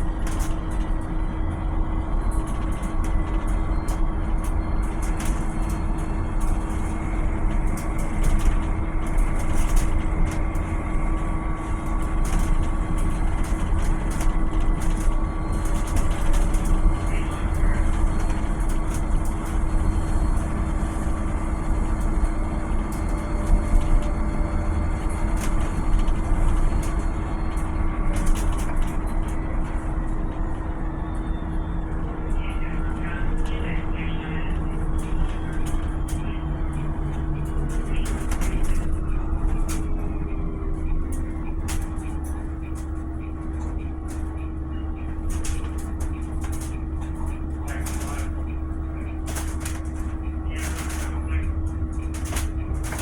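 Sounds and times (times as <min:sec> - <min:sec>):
electric bus whine and rumble: 0:00.0 - 0:53.0
clicks and rattles: 0:45.1 - 0:48.4.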